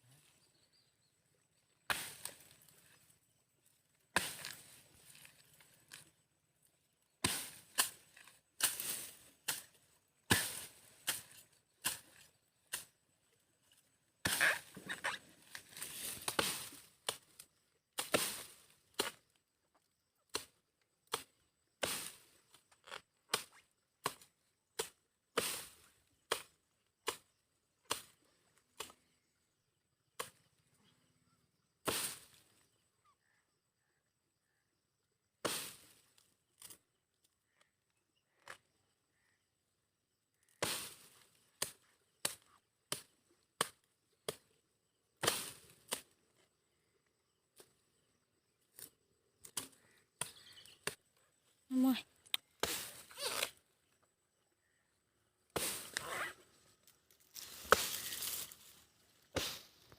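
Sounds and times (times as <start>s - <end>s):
chopping blows into wood: 55.5s - 56.0s, 59.3s - 59.7s.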